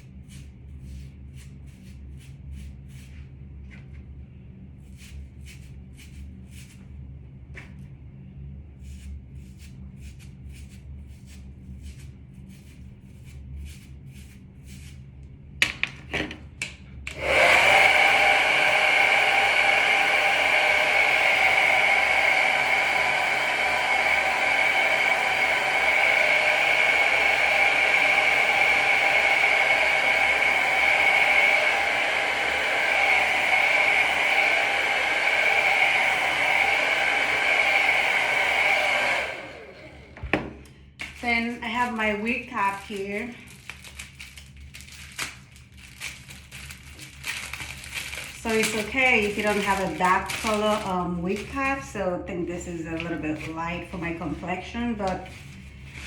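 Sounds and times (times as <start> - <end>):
hair dryer blowing: 17.1 - 43.4, 47.1 - 52.0, 52.8 - 56.0.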